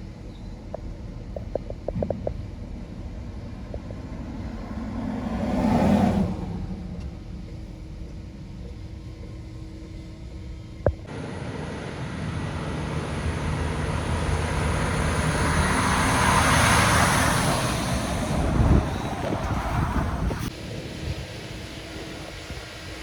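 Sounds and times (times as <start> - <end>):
heavy truck passing: 2.9 - 8.3, 11.1 - 22.5.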